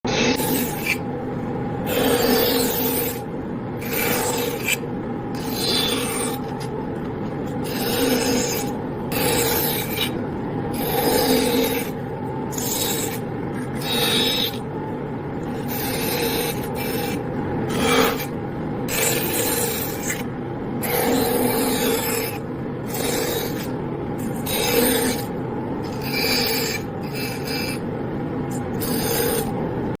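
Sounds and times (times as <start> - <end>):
bandsaw motor hum: 0.1 - 1.2, 1.8 - 27.9, 28.5 - 29.6
bandsaw blade rasping through wood: 1.9 - 3.2, 7.6 - 10.1, 10.8 - 13.2.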